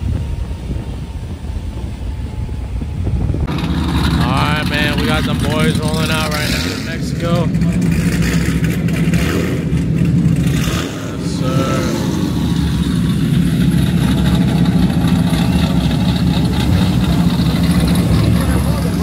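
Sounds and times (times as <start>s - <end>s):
loud car engine running: 0.0s - 19.0s.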